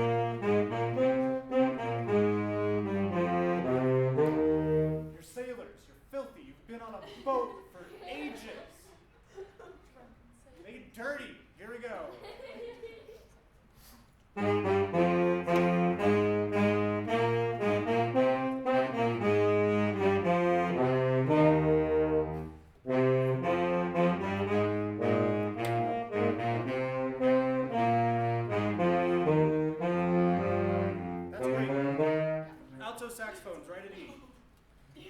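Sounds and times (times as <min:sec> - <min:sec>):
concert wind band playing: 0:00.0 - 0:05.3, 0:14.3 - 0:32.8.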